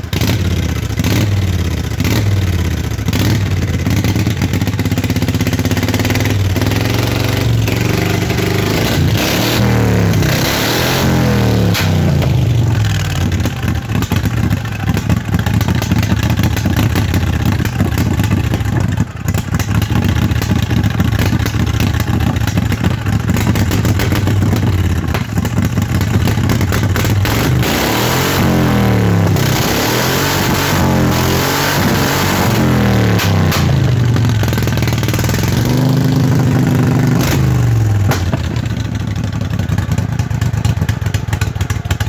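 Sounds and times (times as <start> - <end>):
engine revving: 0.0 - 14.1, 23.3 - 38.8.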